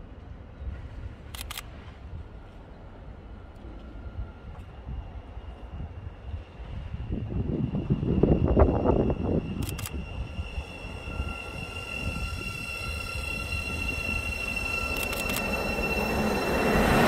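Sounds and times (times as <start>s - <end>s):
train low rumble: 0.0s - 17.0s
high-pitched ringing from track: 7.4s - 17.0s.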